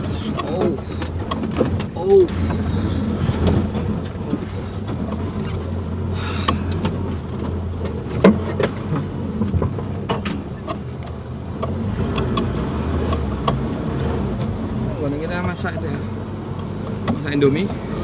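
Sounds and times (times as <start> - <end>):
knocks and rattles: 0.0 - 13.8
car engine running: 0.0 - 18.0.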